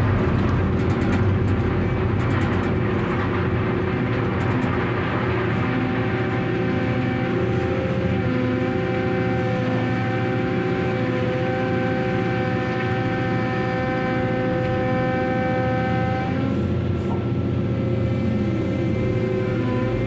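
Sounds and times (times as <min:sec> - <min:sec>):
heavy machinery rumble: 0:00.0 - 0:20.0
machinery whine: 0:00.0 - 0:20.0.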